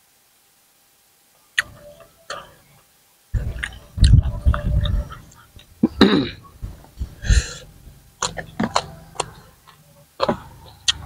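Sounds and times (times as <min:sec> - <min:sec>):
close chewing: 0:08.2 - 0:11.0.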